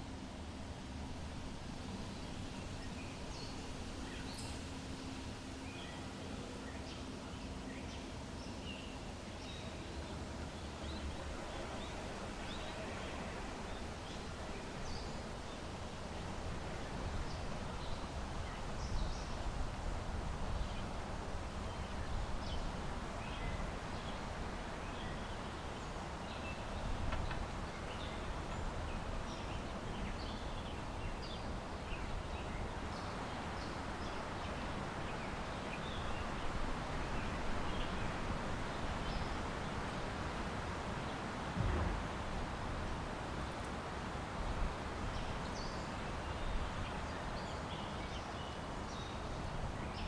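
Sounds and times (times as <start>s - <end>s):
small birds chirping: 20.4s - 40.0s
low outdoor rumble: 41.3s - 45.3s.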